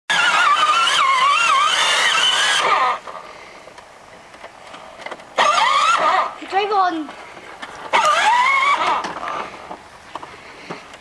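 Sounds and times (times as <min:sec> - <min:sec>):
toy truck electronic revving tone: 0:00.1 - 0:03.1, 0:05.4 - 0:06.4, 0:07.9 - 0:09.5.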